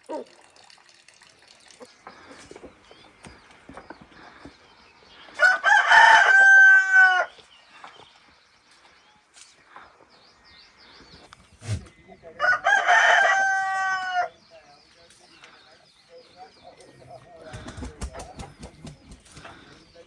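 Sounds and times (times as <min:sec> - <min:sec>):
rooster crowing: 0:05.4 - 0:07.4, 0:12.4 - 0:14.3.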